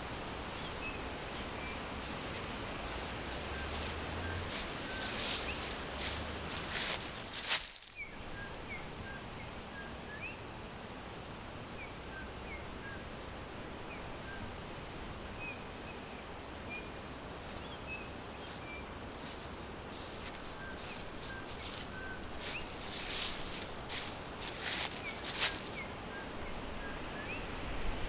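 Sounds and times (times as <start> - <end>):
small birds chirping: 0.0 - 8.4, 15.4 - 26.2
forest background hiss: 0.0 - 27.9
rustling with sharp crackle: 0.4 - 8.2, 16.4 - 26.0.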